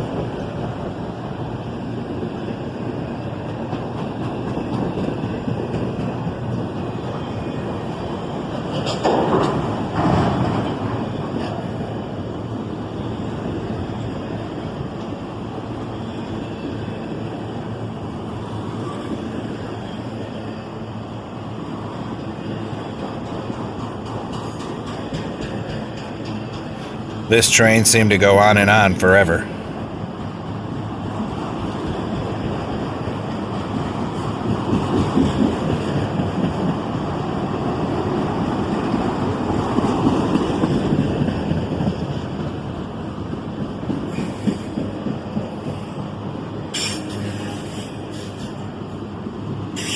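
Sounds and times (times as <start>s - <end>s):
train wheels rumbling on rail: 0.0s - 49.9s.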